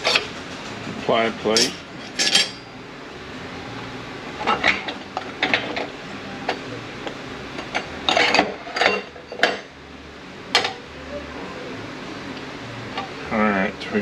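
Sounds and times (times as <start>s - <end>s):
metal clutch plates clinking: 1.5s - 2.7s.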